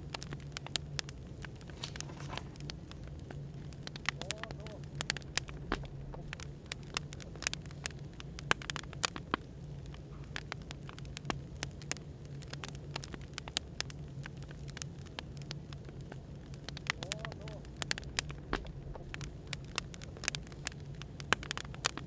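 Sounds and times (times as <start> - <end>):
wood fire crackling: 1.4 - 3.2.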